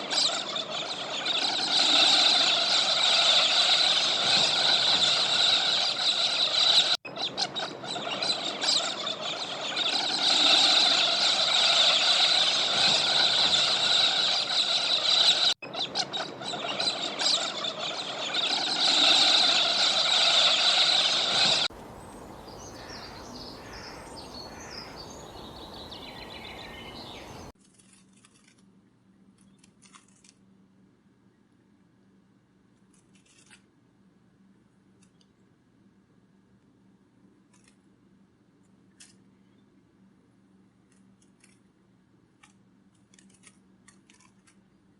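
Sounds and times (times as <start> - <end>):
bird chirps: 0.0 - 27.5
flock of poultry calling: 0.0 - 27.5.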